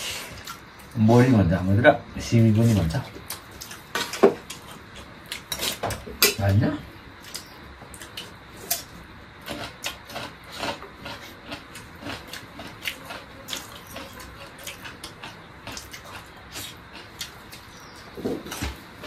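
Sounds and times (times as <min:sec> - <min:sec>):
chewing with smacks and clicks: 0:03.1 - 0:06.3, 0:07.2 - 0:19.0.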